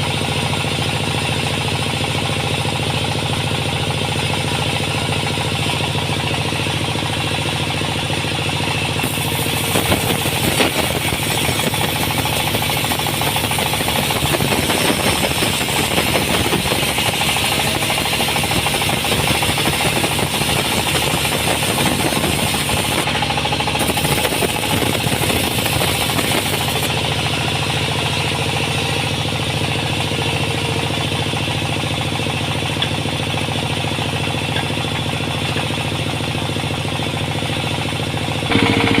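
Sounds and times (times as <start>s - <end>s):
sawmill machinery humming and rattling: 0.0s - 39.0s
saw blade cutting log hissing: 9.0s - 28.0s.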